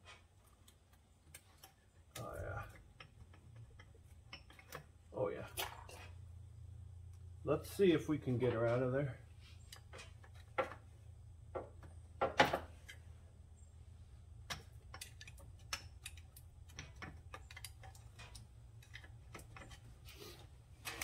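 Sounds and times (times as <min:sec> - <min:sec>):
low steady hum: 0:00.0 - 0:21.0
metal tools clicking and knocking: 0:01.3 - 0:05.0, 0:14.5 - 0:20.0.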